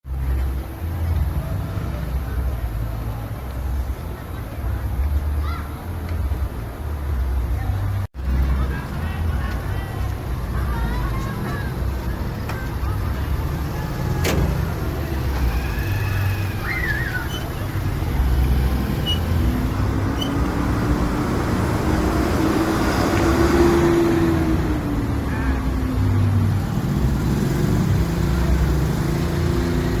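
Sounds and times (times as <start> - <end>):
bus engine rumbling: 0.1 - 30.0.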